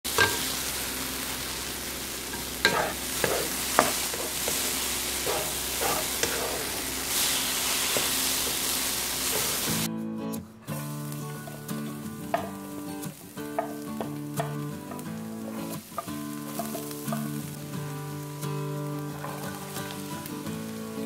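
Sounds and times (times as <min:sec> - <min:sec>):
tofu sizzling in a pan: 0:00.1 - 0:09.9, 0:10.7 - 0:21.0
wooden spatula scraping a pan: 0:02.3 - 0:09.9.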